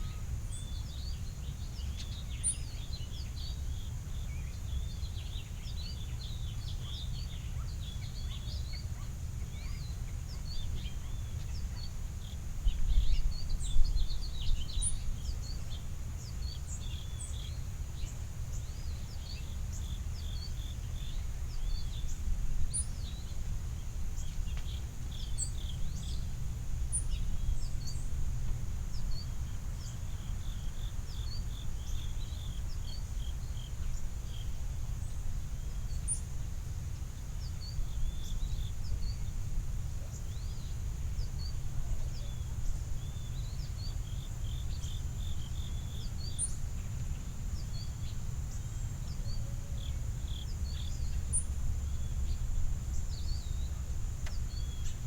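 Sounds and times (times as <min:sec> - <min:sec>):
small birds chirping: 0:40.0 - 0:55.0.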